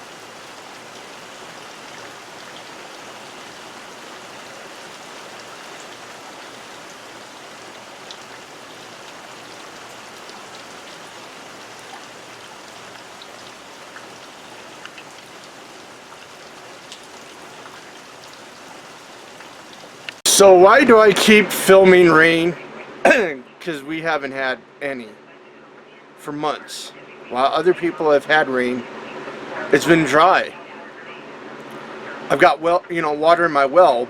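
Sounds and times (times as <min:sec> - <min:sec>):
raindrops ticking on shed: 0:00.0 - 0:22.5
heavy rain falling: 0:00.0 - 0:23.3.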